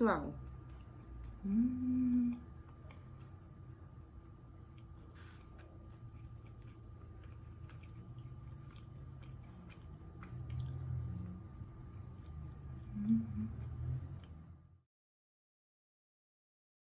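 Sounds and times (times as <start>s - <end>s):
low hum: 0.0s - 14.9s
person chewing snack food: 0.4s - 1.6s, 2.3s - 14.8s.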